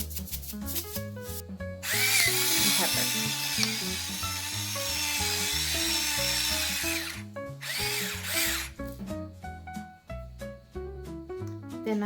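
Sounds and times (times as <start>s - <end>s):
background music: 0.0s - 12.0s
pepper grinder grinding: 1.8s - 8.8s.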